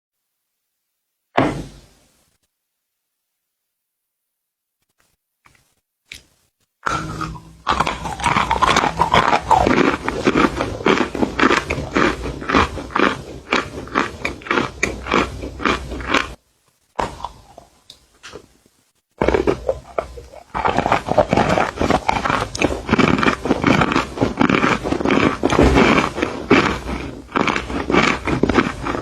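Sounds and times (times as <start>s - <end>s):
crunchy biting and chewing: 5.5s - 16.4s, 17.0s - 18.4s, 19.2s - 29.0s.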